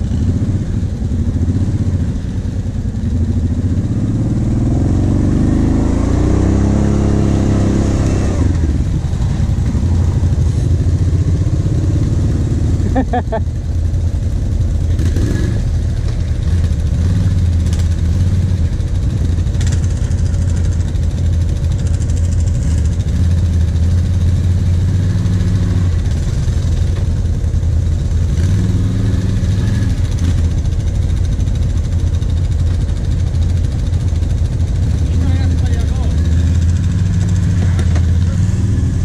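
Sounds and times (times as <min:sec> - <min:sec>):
quad bike engines running: 0:00.0 - 0:39.0.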